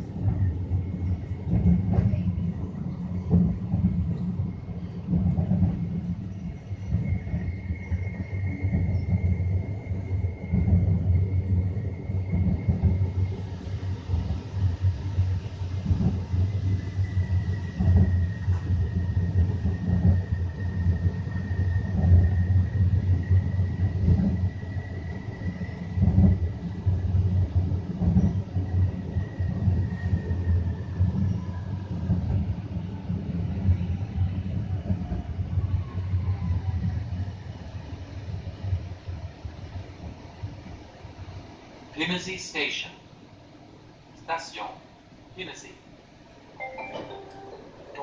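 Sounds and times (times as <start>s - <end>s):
train wheels rumbling on rails: 0.0s - 48.0s
faint high whine: 46.6s - 48.0s.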